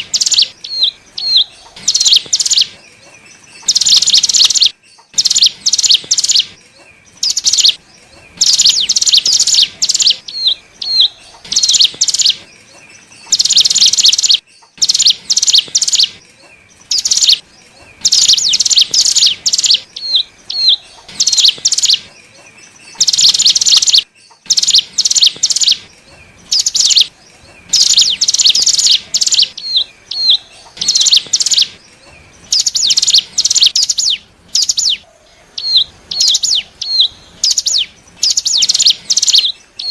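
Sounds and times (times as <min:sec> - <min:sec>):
bird singing buzzy trills: 0:00.0 - 0:39.9.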